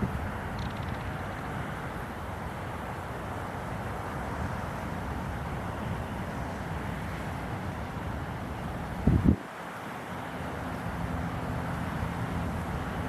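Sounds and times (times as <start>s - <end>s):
wind buffeting microphone: 0.0s - 2.2s, 8.7s - 9.5s
river water flowing: 0.0s - 13.0s.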